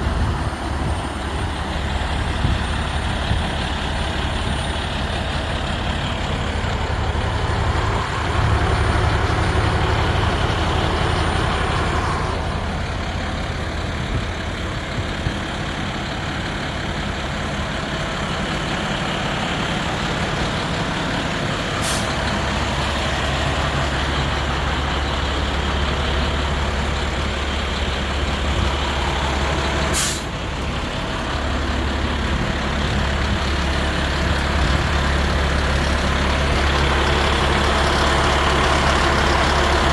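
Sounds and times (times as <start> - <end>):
diesel truck engine running: 0.0 - 39.9
air brake hiss: 21.8 - 22.2, 29.9 - 30.4.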